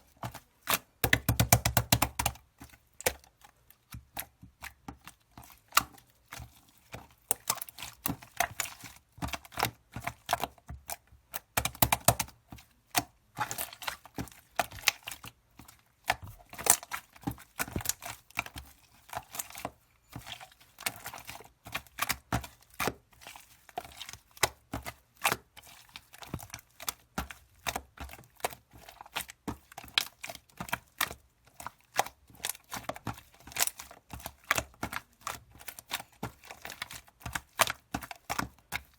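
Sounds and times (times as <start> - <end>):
slime clicking and popping: 0.7 - 2.4, 11.4 - 12.3.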